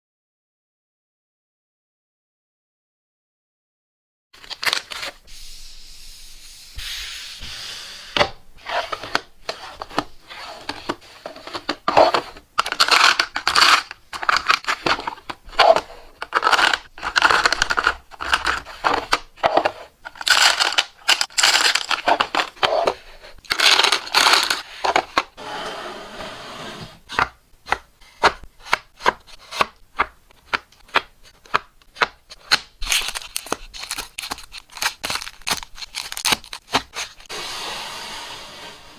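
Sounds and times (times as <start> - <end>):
scraping strokes on hard surface: 8.6 - 12.4, 24.5 - 27.1, 37.2 - 38.9.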